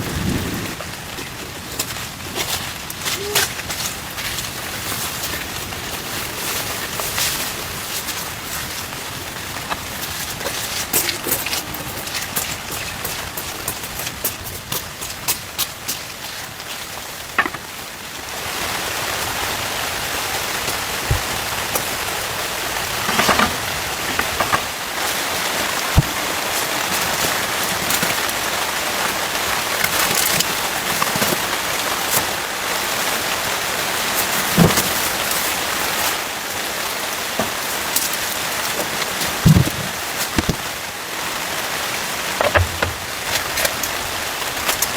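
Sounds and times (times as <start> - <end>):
heavy rain on a tent: 0.0 - 44.9
heavier drops knocking: 39.5 - 40.6, 42.4 - 43.1.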